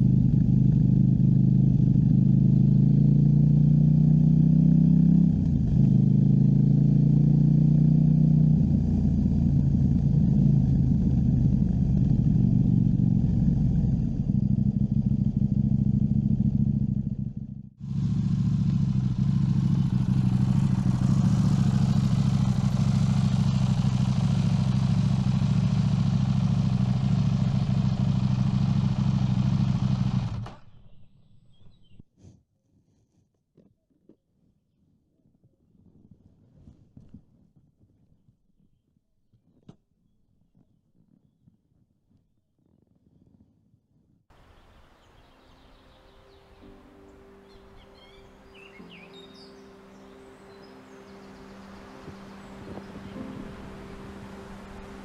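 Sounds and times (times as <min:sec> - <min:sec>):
road noise: 0:00.0 - 0:30.8, 0:44.3 - 0:55.0
motorcycle engine running: 0:00.0 - 0:31.0, 0:45.6 - 0:55.0
wind hiss: 0:50.0 - 0:55.0.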